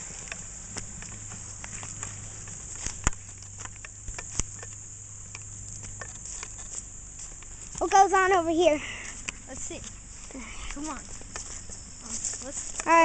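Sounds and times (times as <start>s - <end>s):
footsteps on twigs and debris: 0.0s - 13.0s
steady high hiss: 0.0s - 13.0s
twigs snapping: 0.2s - 7.8s.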